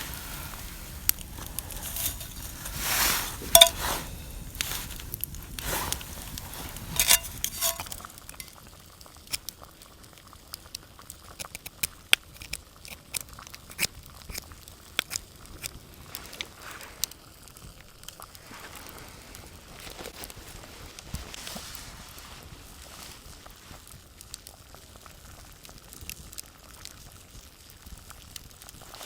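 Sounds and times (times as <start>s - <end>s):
crunching and rustling handling: 0.0s - 8.6s, 15.6s - 24.2s
wood fire crackling: 0.0s - 29.0s.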